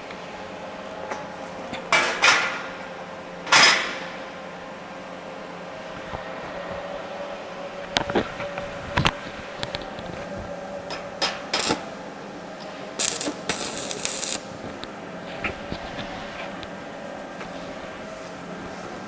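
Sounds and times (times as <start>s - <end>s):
steady hum: 0.0s - 19.0s
harsh welding crackle: 11.4s - 11.9s, 12.9s - 14.7s.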